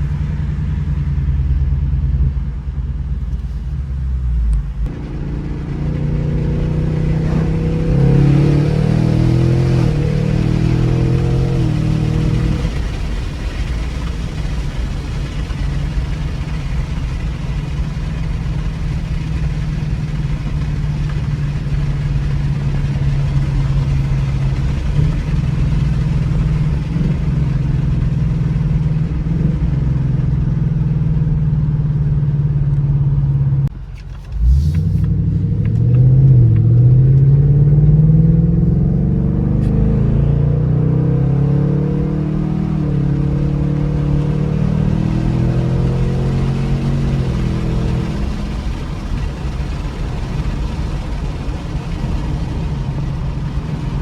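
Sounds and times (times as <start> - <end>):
car engine and exhaust droning: 0.0 - 54.0.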